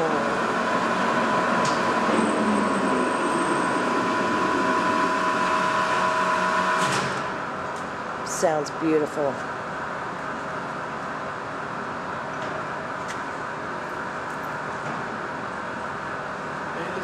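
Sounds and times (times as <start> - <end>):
lathe running with hum and whine: 0.0 - 8.2.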